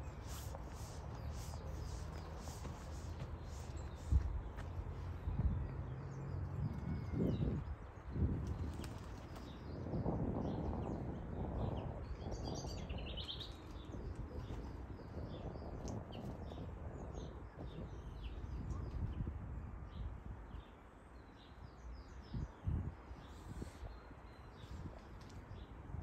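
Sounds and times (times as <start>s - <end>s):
small birds chirping: 0.0s - 19.3s.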